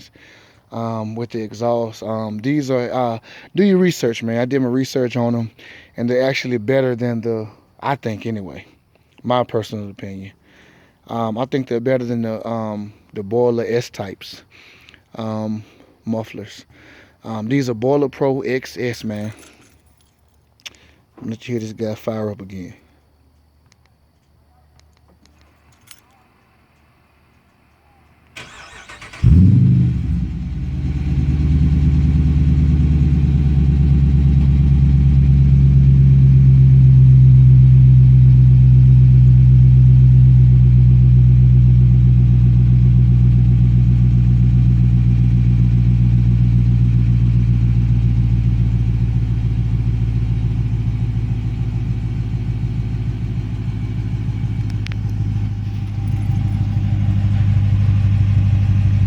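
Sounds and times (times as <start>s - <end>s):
car engine starting and idling: 28.2s - 59.0s.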